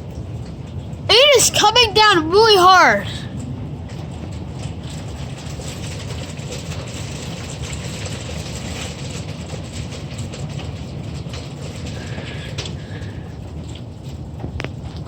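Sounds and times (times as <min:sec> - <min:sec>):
heavy rain: 0:09.3 - 0:14.5.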